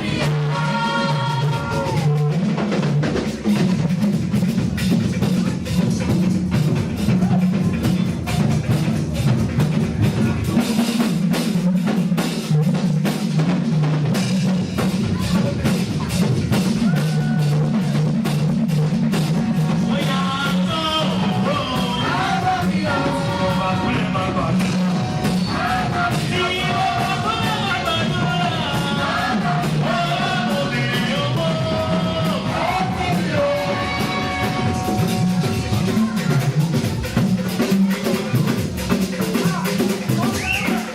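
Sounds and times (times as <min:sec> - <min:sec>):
drum kit beat: 0:00.0 - 0:40.9
live band music: 0:00.0 - 0:40.9
melody line: 0:32.9 - 0:36.6.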